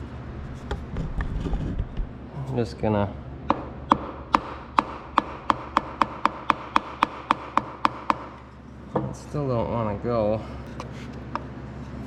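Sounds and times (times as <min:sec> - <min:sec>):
wooden handle tapping on piston: 0:03.5 - 0:08.4.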